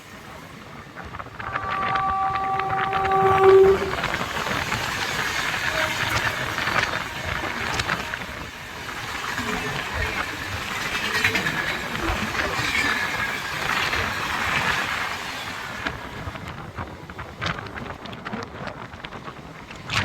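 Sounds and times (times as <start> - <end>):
train rushing past: 0.9 - 16.1.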